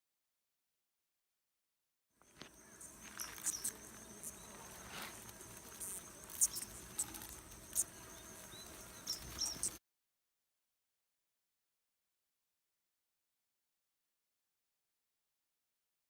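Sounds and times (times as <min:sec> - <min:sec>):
cricket trilling: 0:02.2 - 0:09.8.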